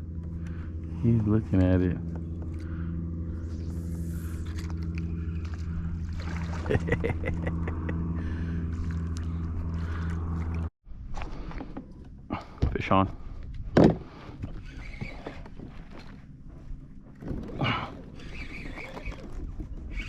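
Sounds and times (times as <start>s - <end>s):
electric motor humming: 0.0s - 10.7s.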